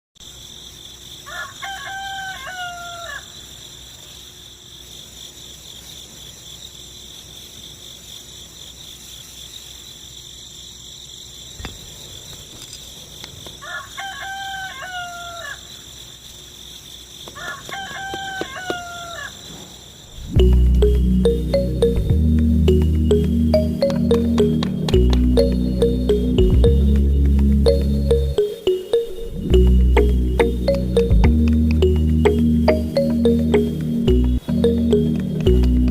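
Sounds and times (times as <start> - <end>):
rooster crowing: 1.2 - 3.4, 13.6 - 15.7, 17.3 - 19.5
steady high-pitched hum: 20.1 - 35.9.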